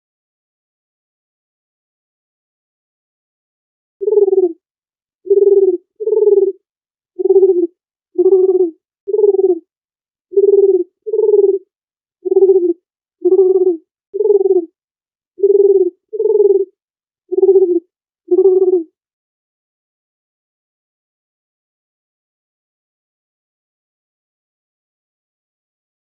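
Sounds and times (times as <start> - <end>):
dove cooing: 4.0 - 4.6, 5.3 - 6.6, 7.2 - 9.6, 10.4 - 14.7, 15.4 - 16.7, 17.3 - 18.9.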